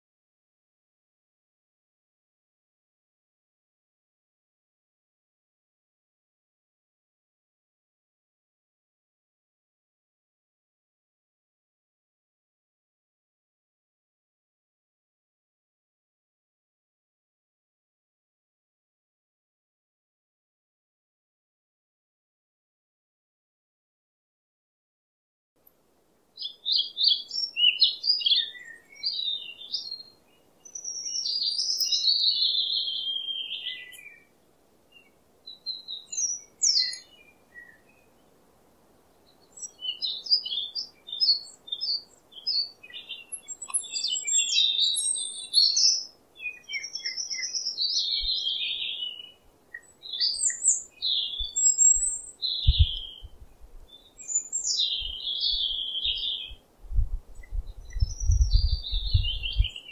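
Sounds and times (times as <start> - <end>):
birds chirping and twittering: 26.4 - 59.9.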